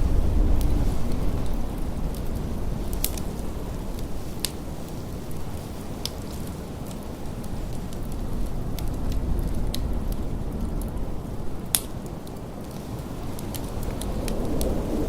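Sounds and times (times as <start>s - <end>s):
blizzard wind rumbling: 0.0s - 15.0s
wood fire crackling: 0.0s - 15.0s.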